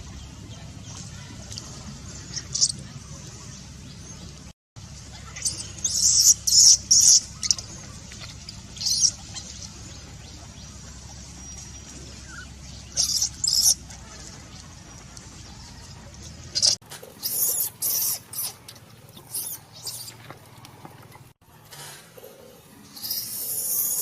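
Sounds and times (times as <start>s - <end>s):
baby monkey squeaking: 5.2s - 7.7s, 8.8s - 9.5s, 13.0s - 13.8s, 16.6s - 18.6s, 19.2s - 20.2s, 23.0s - 24.0s.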